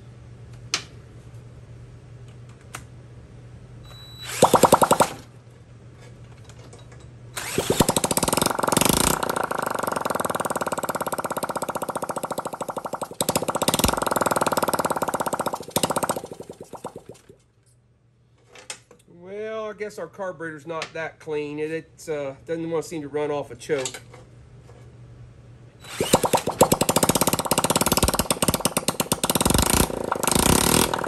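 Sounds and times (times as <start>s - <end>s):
motorcycle engine starting and running: 4.3s - 5.3s, 7.4s - 17.4s, 26.0s - 31.0s.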